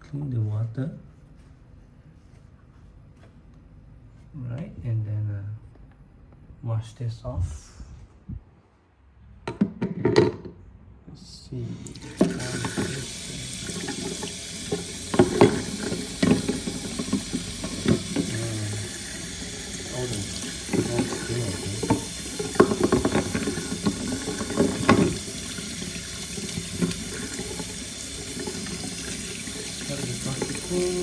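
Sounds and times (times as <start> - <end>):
tap water running into sink: 11.8 - 31.0.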